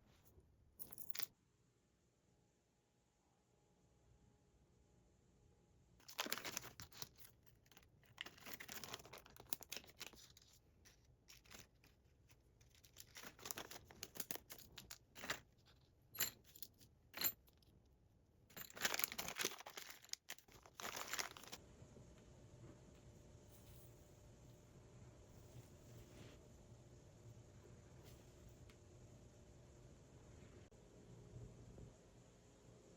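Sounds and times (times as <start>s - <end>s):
rustling and crinkling: 6.0s - 17.7s, 18.5s - 21.6s.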